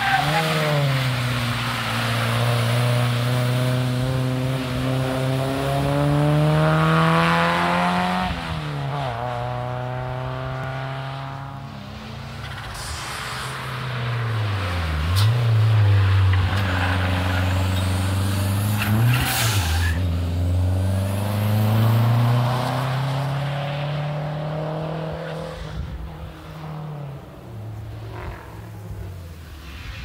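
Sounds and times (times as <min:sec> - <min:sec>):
rally car engine accelerating: 0:00.0 - 0:11.6, 0:14.3 - 0:26.0.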